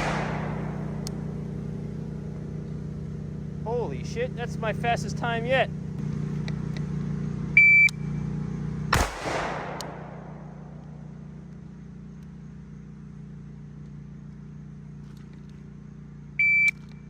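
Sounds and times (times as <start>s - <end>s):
gunshot with echo: 0.0s - 1.6s, 9.0s - 11.1s
low hum: 0.0s - 17.0s.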